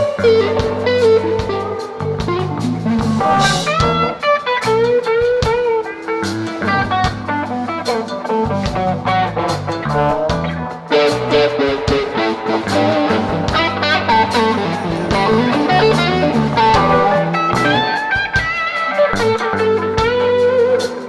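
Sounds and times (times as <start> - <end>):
bass guitar: 0.0 - 21.0
drums: 0.0 - 21.0
electric guitar lead: 0.0 - 21.0.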